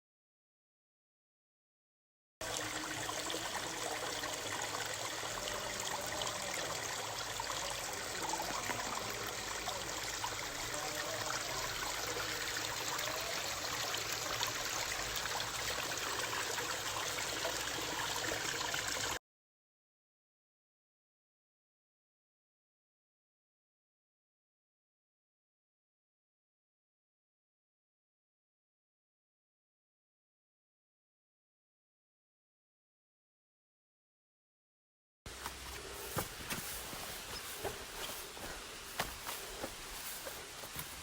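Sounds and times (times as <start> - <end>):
stream water running over rocks: 2.4 - 19.2, 35.3 - 41.0.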